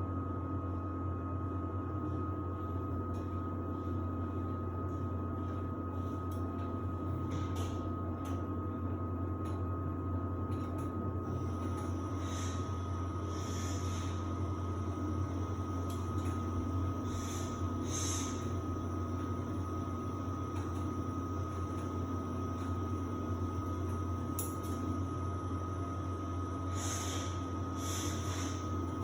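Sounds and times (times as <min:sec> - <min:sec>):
thin constant whine: 0:00.0 - 0:29.0
washer-dryer motor hum: 0:00.0 - 0:29.0.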